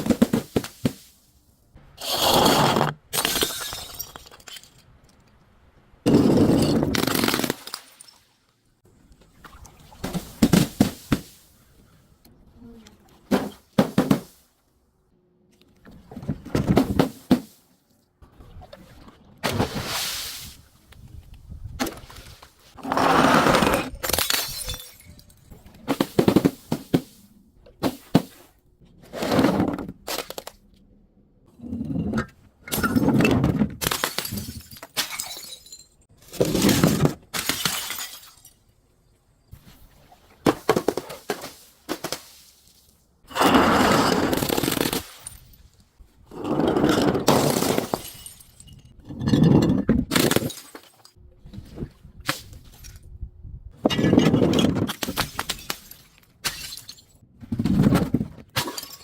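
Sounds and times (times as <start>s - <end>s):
glass bottles crunching and shattering: 2.0s - 5.0s, 6.1s - 8.3s, 23.7s - 26.6s, 31.8s - 38.7s, 43.3s - 45.6s, 46.7s - 51.2s, 53.9s - 57.2s, 58.5s - 59.0s.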